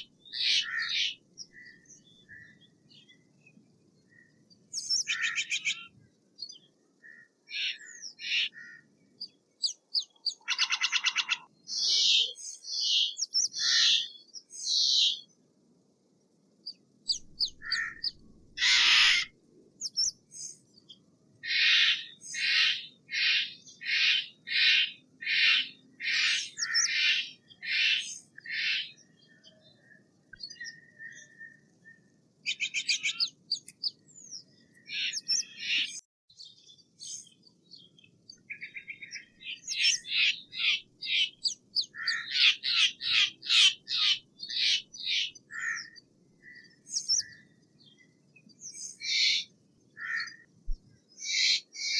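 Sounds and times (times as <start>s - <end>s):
jay giving harsh calls: 17.6s - 19.3s.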